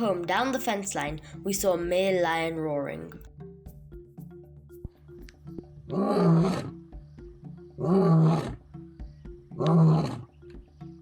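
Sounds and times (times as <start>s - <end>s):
lion roaring: 5.8s - 6.8s, 7.8s - 8.6s, 9.5s - 10.3s.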